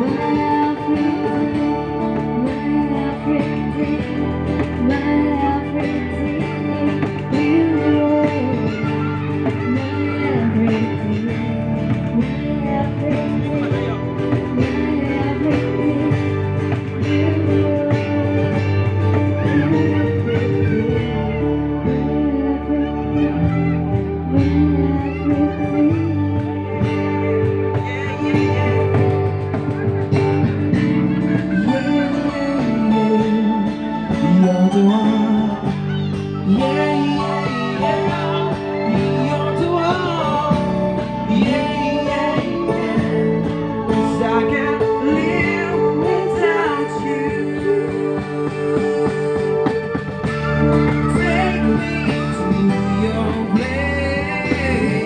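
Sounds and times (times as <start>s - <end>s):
acoustic band playing pop ballad: 0.0s - 55.0s
guitar melody bending in pitch: 0.0s - 55.0s.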